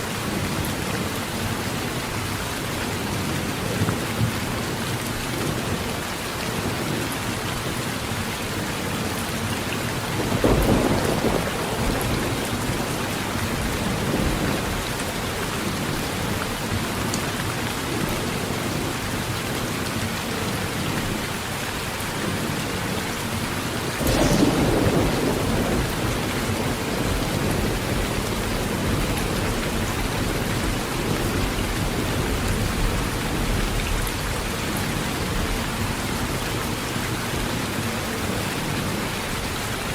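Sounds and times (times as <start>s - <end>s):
heavy rain on a tin roof: 0.0s - 39.9s
thunder rolling: 10.2s - 14.8s, 24.0s - 33.7s.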